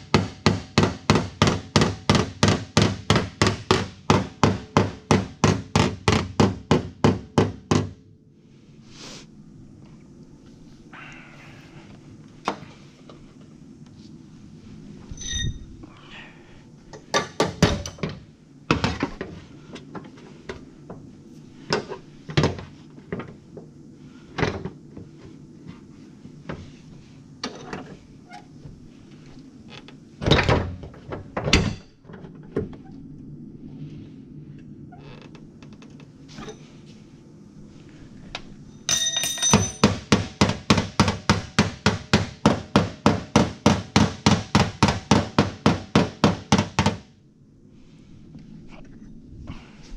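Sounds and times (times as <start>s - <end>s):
hammer strikes on sheet metal: 0.0s - 8.0s, 39.4s - 47.1s
bodywork tools knocking on fender: 0.1s - 8.0s, 17.1s - 19.2s, 38.9s - 47.0s.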